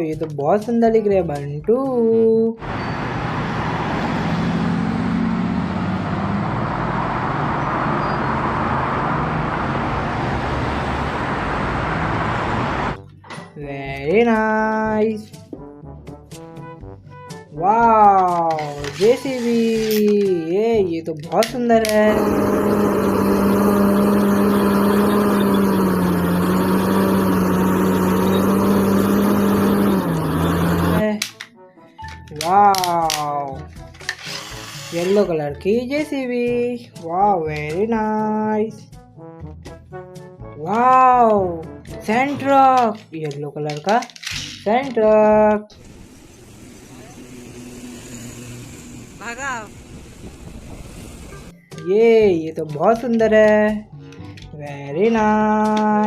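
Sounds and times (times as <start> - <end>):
road noise: 2.6 - 13.0, 21.8 - 31.1, 45.7 - 51.6
vehicle engine running: 2.6 - 13.1, 21.8 - 31.1, 45.7 - 51.6.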